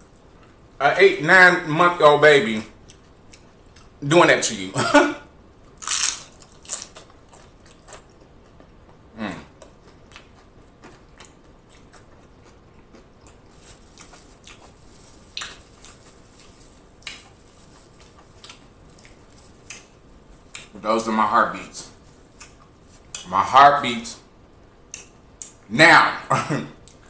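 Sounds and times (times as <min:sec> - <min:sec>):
mouth chewing chips: 0:05.8 - 0:20.8, 0:21.9 - 0:23.3.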